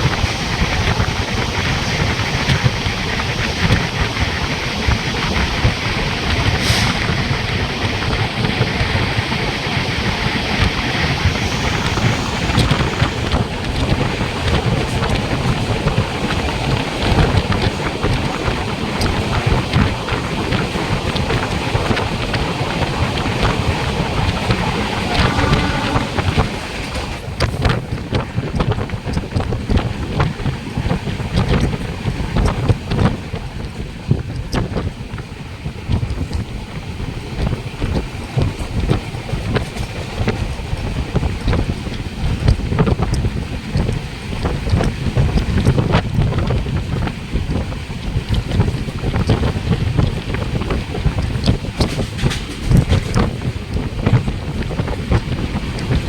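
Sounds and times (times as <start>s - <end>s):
train clicks and rattles: 0.0s - 56.0s
train rumble: 0.0s - 56.0s
wind buffeting microphone: 0.0s - 56.0s
brief hiss: 6.6s - 7.1s.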